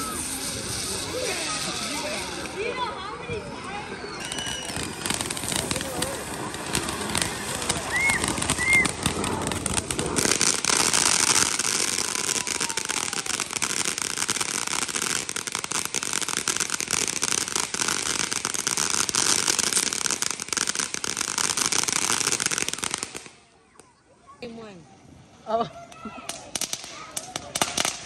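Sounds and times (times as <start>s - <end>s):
fizzing hiss: 0.0s - 2.8s, 4.2s - 23.4s
fireworks crackling: 0.0s - 28.0s.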